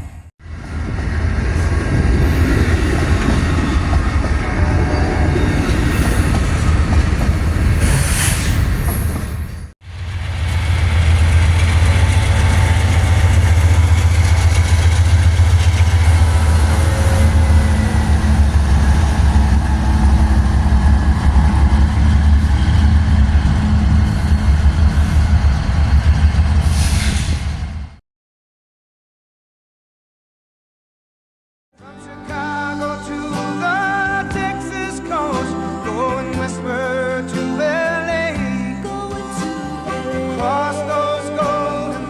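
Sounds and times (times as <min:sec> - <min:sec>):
train rumbling on rails: 0:00.0 - 0:28.0.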